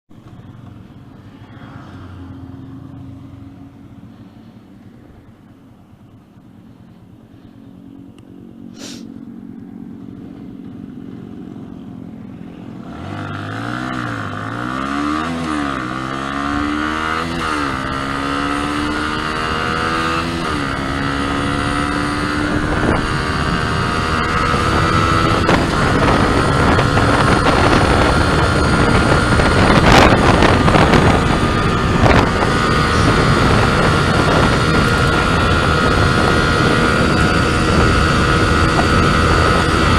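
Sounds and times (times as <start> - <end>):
motorcycle engine accelerating: 0.1 - 39.9
wind noise: 16.2 - 39.9.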